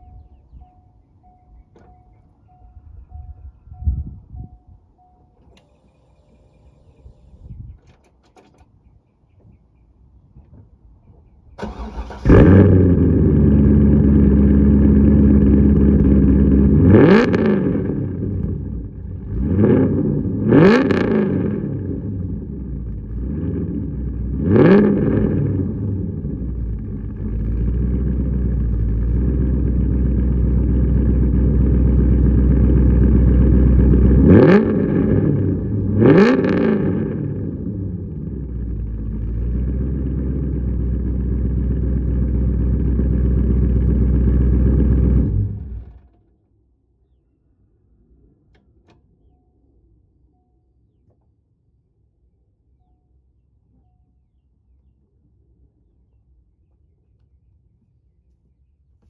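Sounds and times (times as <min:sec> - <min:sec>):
car engine idling and revving: 0:11.6 - 0:46.2.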